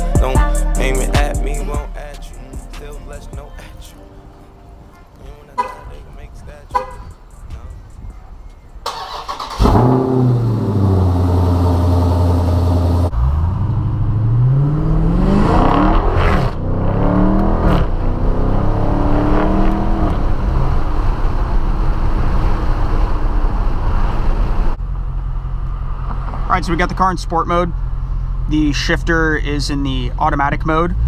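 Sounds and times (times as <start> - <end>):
car engine starting and idling: 5.5 - 15.9
engine revving: 8.8 - 24.7.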